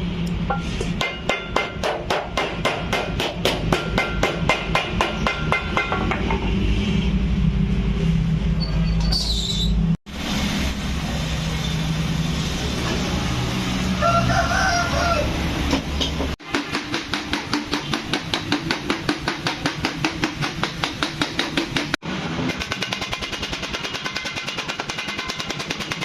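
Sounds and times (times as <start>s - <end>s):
rooster crowing: 13.9s - 15.6s
rapid hammer blows: 16.4s - 26.0s.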